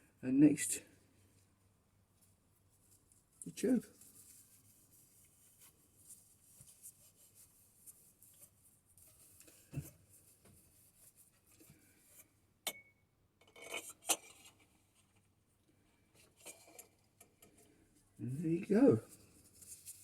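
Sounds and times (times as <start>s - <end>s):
light metal clinks and scrapes: 11.5s - 15.1s, 16.1s - 17.8s.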